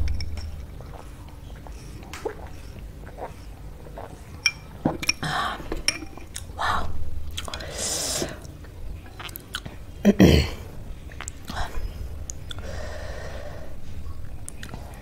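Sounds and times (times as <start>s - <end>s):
person chewing noodles: 0.7s - 4.4s, 7.3s - 10.0s, 11.0s - 13.0s, 13.8s - 15.0s.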